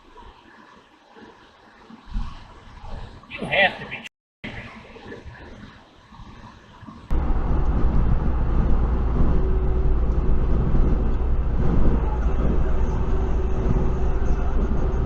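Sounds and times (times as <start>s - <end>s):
road and engine rumble: 7.1s - 15.0s.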